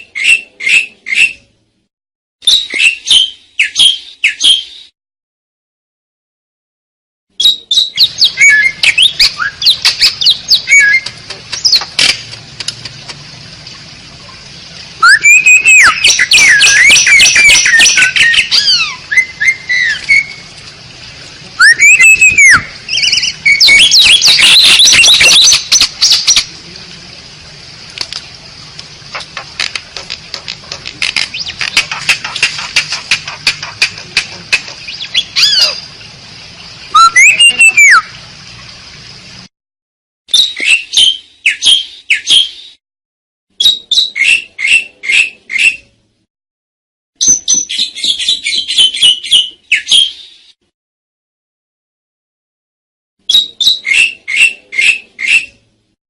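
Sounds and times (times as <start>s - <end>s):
starling singing: 15.0s - 20.5s, 21.6s - 26.5s, 31.1s - 35.9s, 36.9s - 38.1s
rapid clicking notes: 29.2s - 34.9s.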